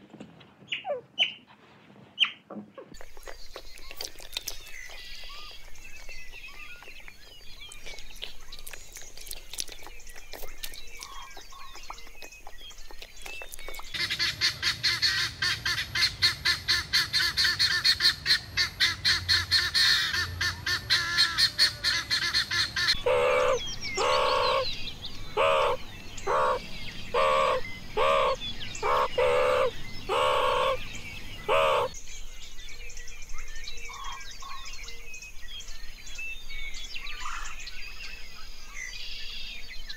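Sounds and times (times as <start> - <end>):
guineafowl rattling chatter: 13.5 - 32.0
guineafowl harsh calls: 14.0 - 32.0.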